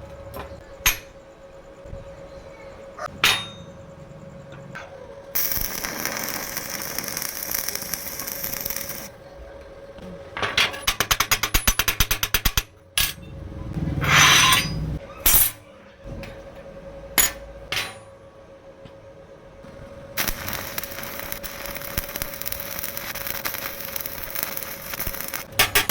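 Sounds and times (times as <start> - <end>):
tool hissing: 20.2 - 25.5.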